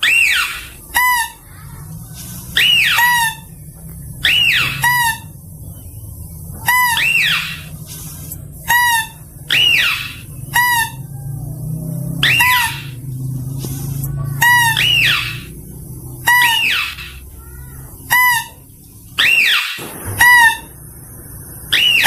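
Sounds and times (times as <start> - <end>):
steady low hum: 0.0 - 22.0
mouse-deer high squeals: 2.2 - 3.6, 6.7 - 7.7, 8.7 - 11.1, 12.2 - 13.0, 16.2 - 17.4.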